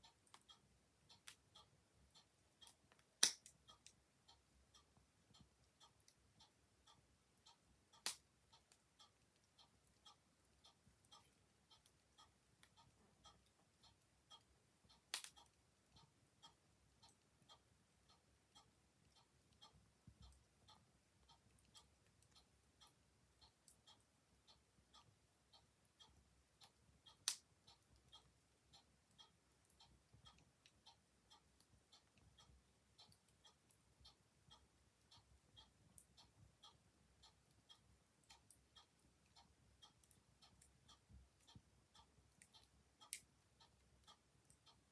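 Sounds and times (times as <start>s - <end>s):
mechanical clock ticking: 0.0s - 44.9s
wood fire snapping: 3.2s - 3.5s, 15.1s - 15.3s.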